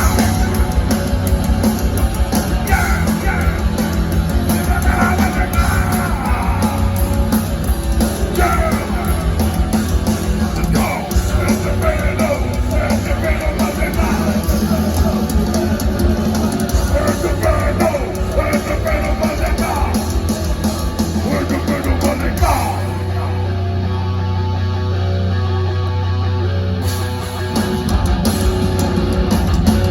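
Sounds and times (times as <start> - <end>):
fast drumming: 0.0 - 23.5, 27.4 - 29.9
distorted guitars: 0.0 - 29.9
shouted vocals: 2.5 - 7.3, 8.2 - 9.5, 10.5 - 20.4, 21.2 - 23.8.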